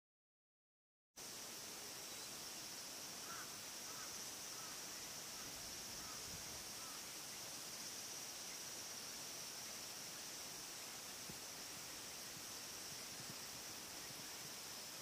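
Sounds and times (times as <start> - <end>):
steady high hiss: 1.2 - 15.0
faint short bird calls: 3.2 - 7.1.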